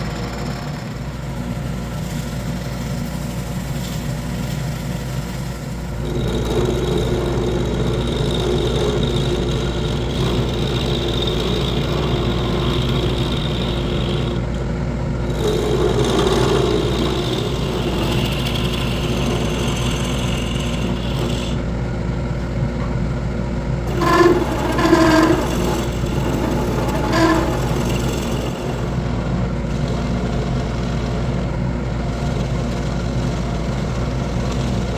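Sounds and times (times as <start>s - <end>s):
wood lathe motor hum: 0.0s - 34.9s
hiss of workpiece being turned: 15.2s - 21.6s, 23.9s - 29.4s
short pitched squeals: 23.9s - 29.6s.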